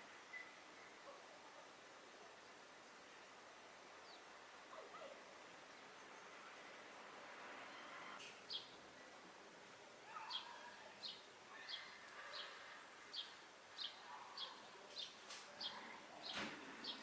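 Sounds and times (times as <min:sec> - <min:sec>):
sparrow chirping: 0:10.1 - 0:17.0.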